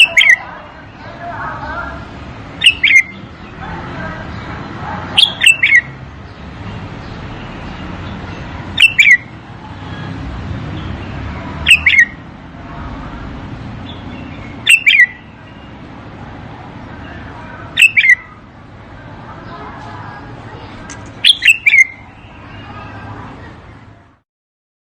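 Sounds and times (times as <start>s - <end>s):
bird singing whistled notes: 2.6s - 3.3s, 5.2s - 5.9s, 8.8s - 9.3s, 11.6s - 12.2s, 13.9s - 15.8s, 17.8s - 18.3s, 21.2s - 23.6s.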